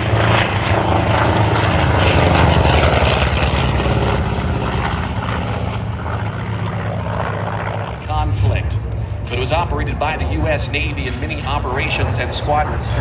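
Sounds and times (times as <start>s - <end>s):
propeller plane engine flyby: 0.0s - 13.0s.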